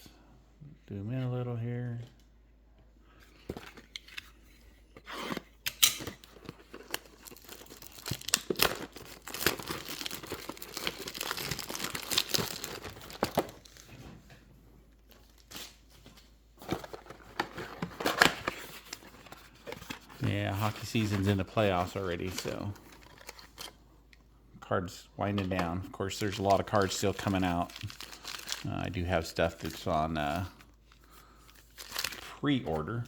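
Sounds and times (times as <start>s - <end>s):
packaging tearing and crinkling: 5.7s - 13.9s, 26.2s - 30.6s, 31.6s - 32.3s.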